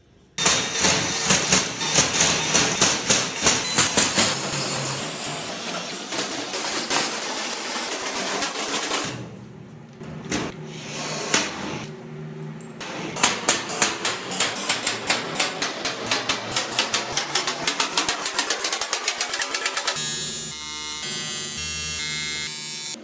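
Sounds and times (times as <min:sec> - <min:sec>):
tool rasping: 0:00.4 - 0:09.2, 0:12.8 - 0:20.0.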